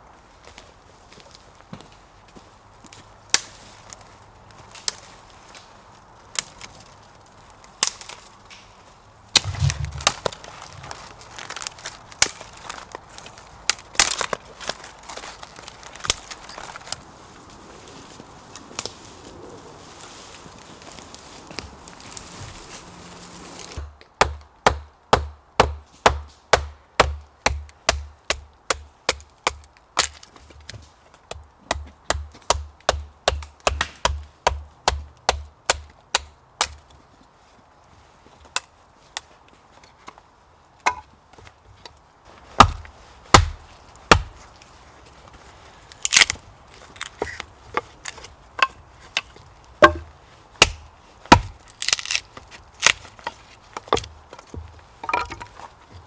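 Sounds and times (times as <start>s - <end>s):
axe chopping wood: 9.4s - 10.6s, 23.7s - 36.8s, 42.6s - 44.4s, 47.0s - 52.2s, 52.8s - 55.5s.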